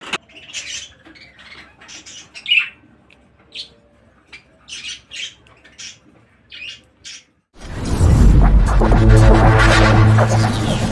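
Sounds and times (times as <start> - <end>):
small birds chirping and squawking: 0.0 - 7.5.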